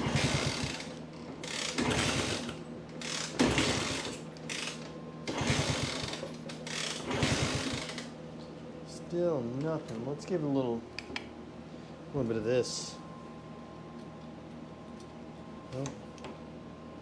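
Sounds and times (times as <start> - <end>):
motorcycle engine kick-started: 0.0 - 8.1.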